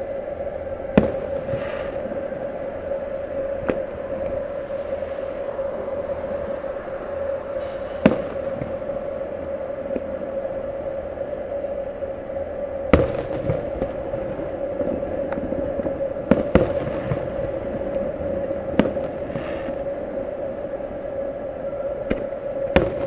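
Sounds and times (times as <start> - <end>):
steady drone: 0.0 - 23.0
firework bangs: 0.8 - 10.4, 12.9 - 20.6, 22.1 - 23.0.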